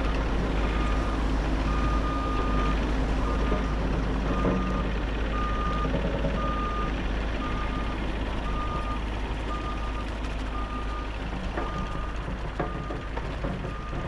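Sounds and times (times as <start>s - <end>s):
diesel engine running: 0.0s - 14.0s
sharp knocks: 11.4s - 14.0s.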